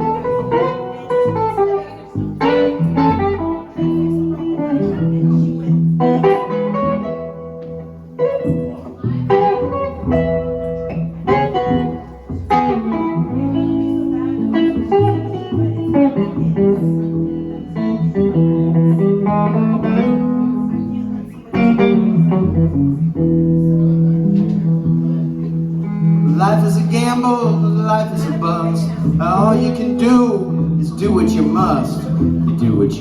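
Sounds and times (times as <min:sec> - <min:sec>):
guitar picking: 0:00.0 - 0:33.0
upright bass plucked notes: 0:00.0 - 0:33.0.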